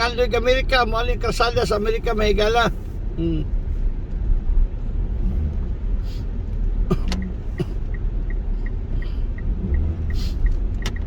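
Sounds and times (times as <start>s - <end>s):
car rumbling on road: 0.0s - 11.0s
light regular ticking: 6.5s - 11.0s.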